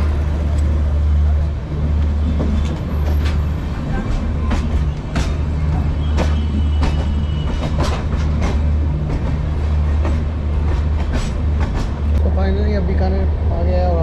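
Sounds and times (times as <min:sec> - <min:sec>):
train rumble: 0:00.0 - 0:14.0
wheels clacking on track: 0:01.7 - 0:12.6.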